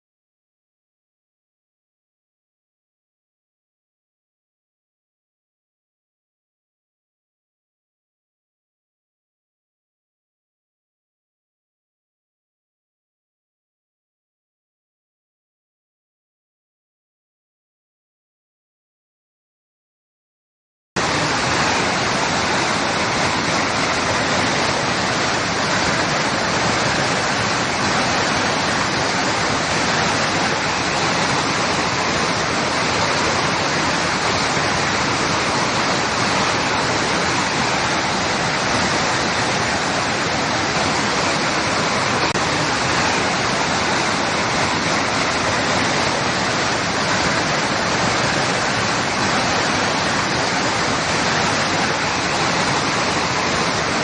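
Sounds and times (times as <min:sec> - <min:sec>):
water rushing against rocks: 0:21.0 - 0:54.0.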